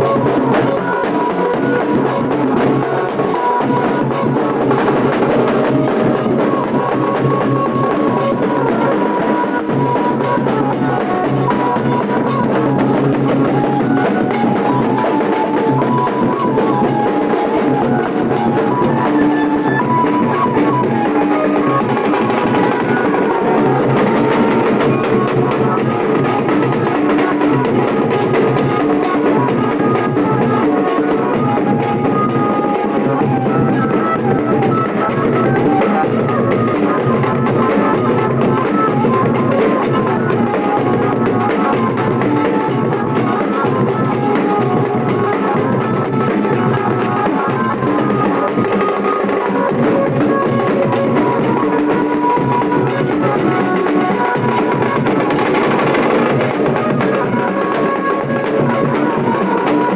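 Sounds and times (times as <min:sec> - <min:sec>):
dhol drums beating: 0:00.0 - 0:59.9.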